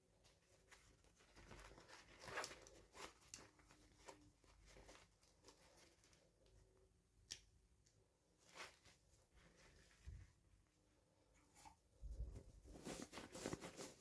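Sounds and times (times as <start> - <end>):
soft rustles: 8.2 - 14.0.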